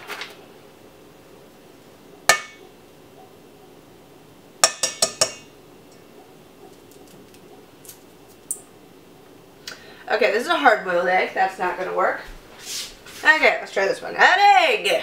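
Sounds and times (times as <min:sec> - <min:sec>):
egg clinking on metal bowl: 0:04.6 - 0:05.5.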